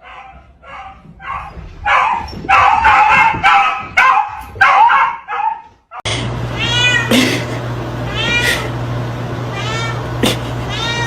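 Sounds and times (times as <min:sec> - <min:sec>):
steady low hum: 0:06.1 - 0:11.0
cat meowing: 0:06.6 - 0:07.5, 0:08.1 - 0:08.7, 0:09.5 - 0:11.0.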